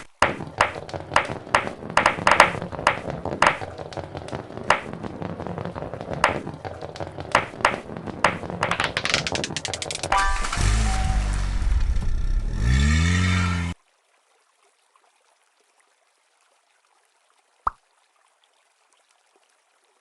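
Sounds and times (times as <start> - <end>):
metal toy cars clicking: 8.6 - 10.6.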